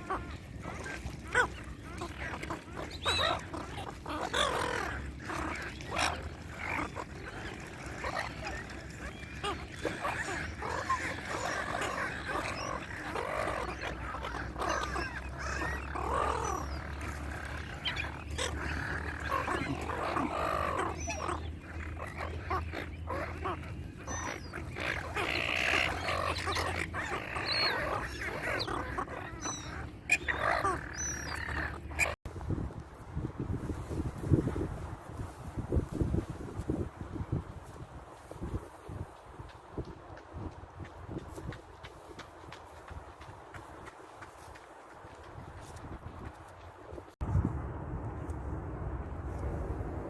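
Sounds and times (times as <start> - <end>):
swans calling: 0.0 - 32.2.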